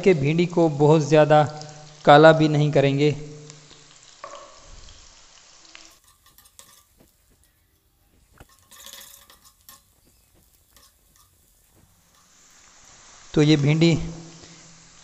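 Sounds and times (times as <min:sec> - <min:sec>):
faint sizzle of frying okra: 0:00.0 - 0:15.0
metal spoon clicking on pan: 0:05.9 - 0:06.9, 0:08.4 - 0:10.0, 0:10.7 - 0:11.4.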